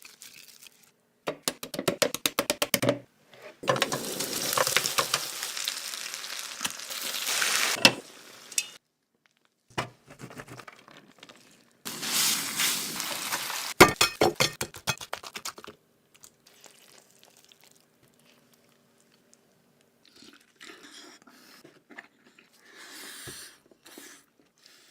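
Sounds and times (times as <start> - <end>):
crunching of fried chicken: 15.0 - 19.4.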